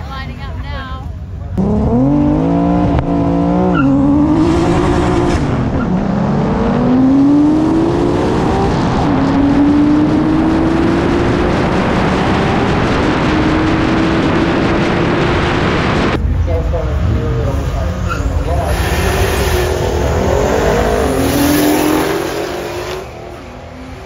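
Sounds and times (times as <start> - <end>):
car engine at full throttle: 1.2 - 24.0.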